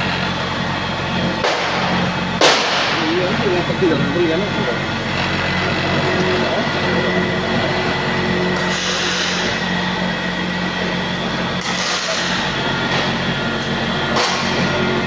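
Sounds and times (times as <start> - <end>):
steady high tone: 0.0 - 11.6
welding machine humming: 0.0 - 15.0.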